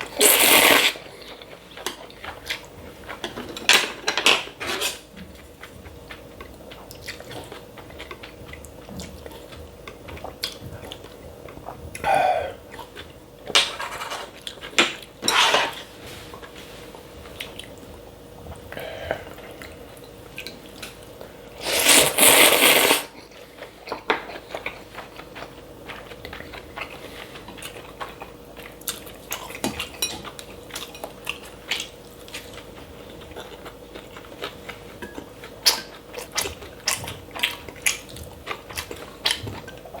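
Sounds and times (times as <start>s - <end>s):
slurping noodles: 0.1s - 1.0s, 21.6s - 23.1s
chewing: 4.7s - 13.2s, 15.8s - 40.0s.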